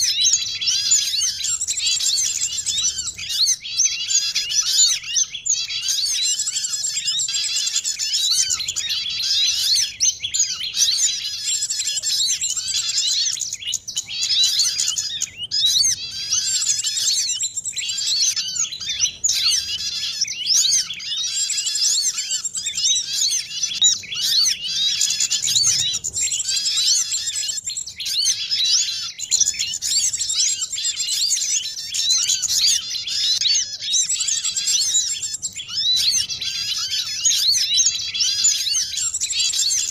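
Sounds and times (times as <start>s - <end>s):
chorus of small songbirds: 0.0s - 39.9s.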